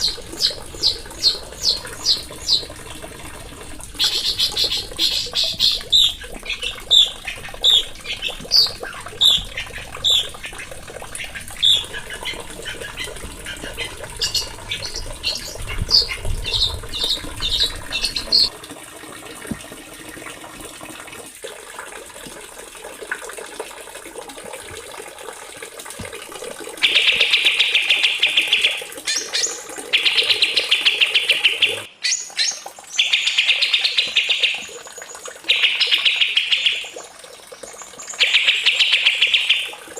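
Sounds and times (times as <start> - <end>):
birds buzzing trills: 0.0 - 18.5
songbirds chirping: 0.0 - 18.5.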